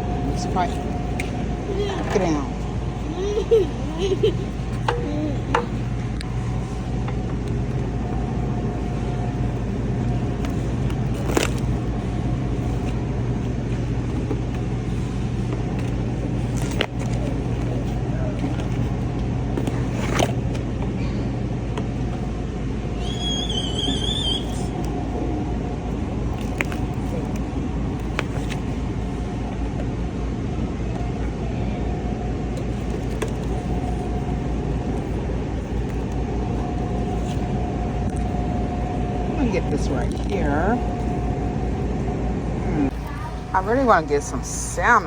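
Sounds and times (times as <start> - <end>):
refrigeration and ventilation hum: 0.0 - 45.0
high wavering squeal: 22.9 - 24.8.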